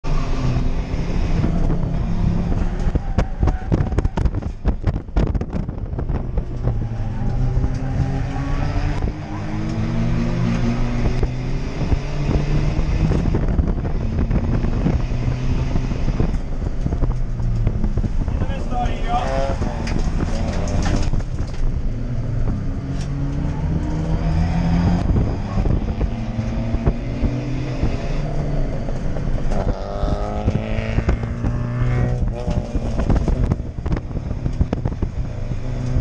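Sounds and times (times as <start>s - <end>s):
wind noise: 0.0s - 36.0s
diesel engine revving: 17.6s - 36.0s.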